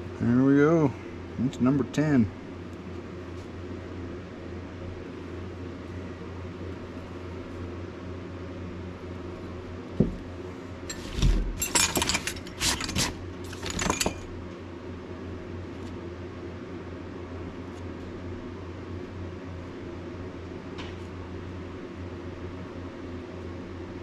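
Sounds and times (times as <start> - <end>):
steady low hum: 0.0 - 24.0
single knock: 10.0 - 10.2
metallic clattering and jingling: 10.9 - 14.4.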